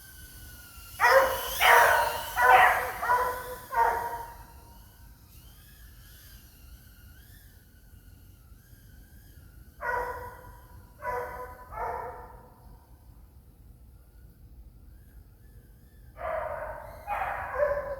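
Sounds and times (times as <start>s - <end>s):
dog barking: 1.0s - 4.5s, 9.8s - 12.6s, 16.2s - 17.9s
faint wavering dog whine: 1.0s - 4.5s.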